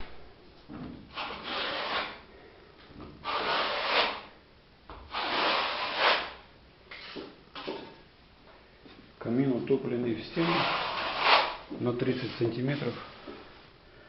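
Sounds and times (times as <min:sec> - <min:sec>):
scraping rubbing sounds: 0:01.1 - 0:02.2, 0:03.2 - 0:04.3, 0:05.1 - 0:07.9, 0:10.4 - 0:13.1.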